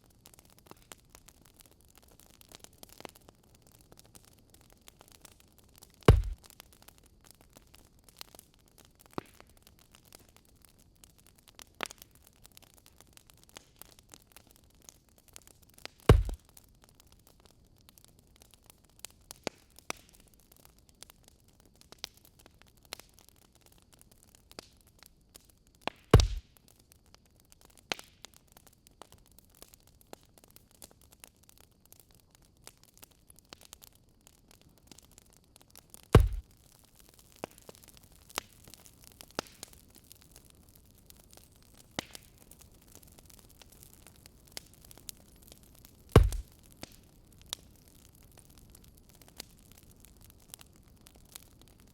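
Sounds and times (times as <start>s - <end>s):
wood fire crackling: 0.0s - 51.9s
loud low thump: 6.1s - 6.4s, 36.2s - 36.4s.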